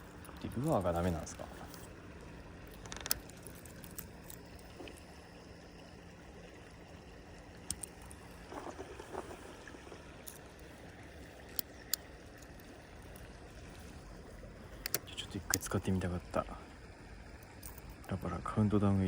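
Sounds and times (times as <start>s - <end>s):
flowing river water: 0.0s - 19.0s.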